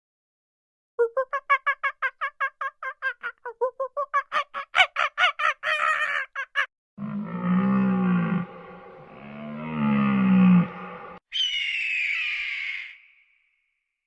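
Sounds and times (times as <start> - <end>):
long low animal call: 7.0 - 11.7.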